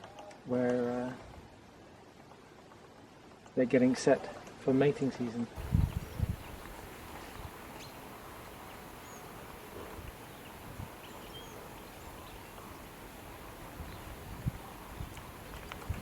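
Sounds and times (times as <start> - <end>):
outdoor background noise: 0.0 - 16.0
faint bird chirps: 5.6 - 16.0.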